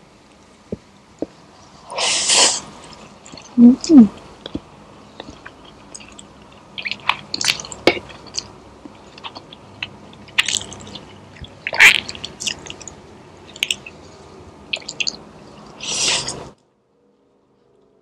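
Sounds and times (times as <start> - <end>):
person chewing with mouth smacks: 3.2 - 14.0, 14.7 - 16.5.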